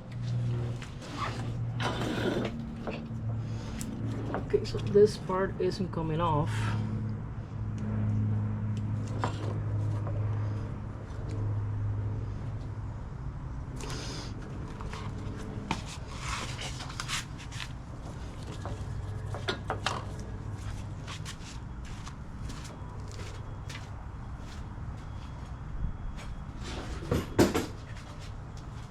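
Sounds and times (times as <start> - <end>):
steady low hum: 0.0 - 28.9
hand tools and metal parts handled: 26.2 - 28.9.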